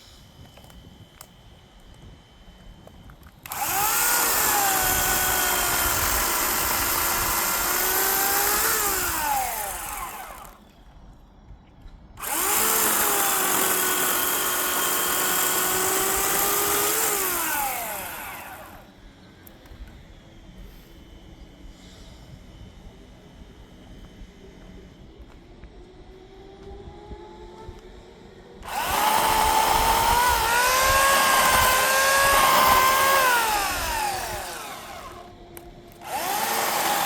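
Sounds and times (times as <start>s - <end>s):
electric chainsaw cutting wood: 3.4s - 10.7s, 12.2s - 18.9s, 28.6s - 37.0s.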